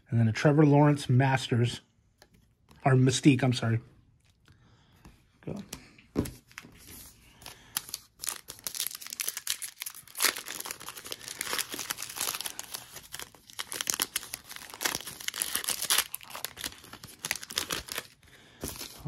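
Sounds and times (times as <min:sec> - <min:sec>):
foil wrapper tearing and crinkling: 0:07.7 - 0:19.0.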